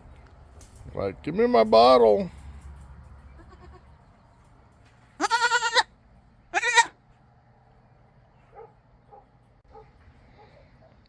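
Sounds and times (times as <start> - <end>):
goat bleating loudly: 3.4 - 3.9, 5.2 - 5.9, 6.5 - 7.0.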